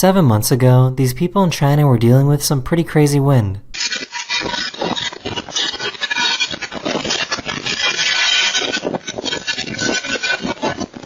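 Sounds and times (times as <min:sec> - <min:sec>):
rattling and scraping: 0:03.8 - 0:11.0.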